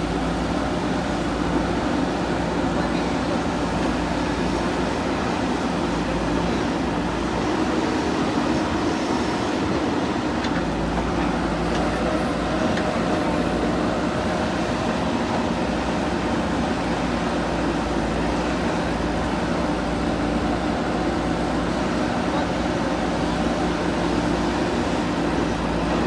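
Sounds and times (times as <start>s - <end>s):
heavy machinery diesel engine: 0.0s - 26.0s.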